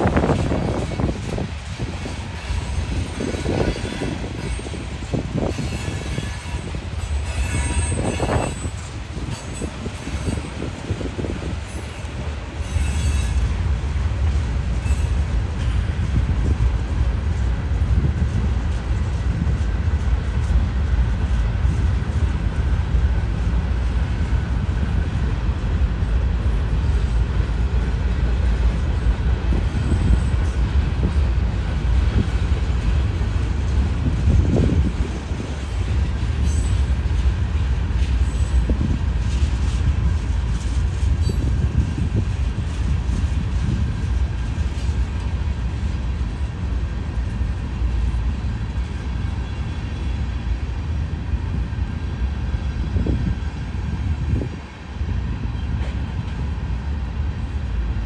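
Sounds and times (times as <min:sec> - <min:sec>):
train wheels rumbling on rail: 0:00.0 - 0:58.0
faint high wheel squeals: 0:03.0 - 0:13.5, 0:36.4 - 0:37.0.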